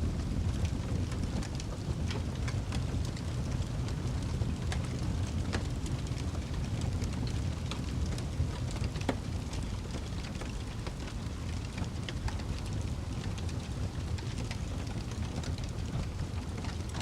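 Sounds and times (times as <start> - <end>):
fire roaring with crackles: 0.0 - 17.0.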